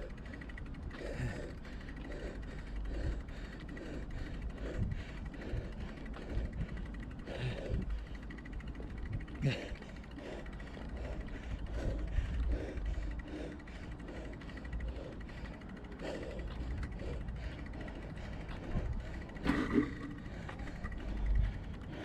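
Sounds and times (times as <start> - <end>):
bicycle rolling noise: 0.0 - 22.0
wind buffeting microphone: 4.5 - 8.0.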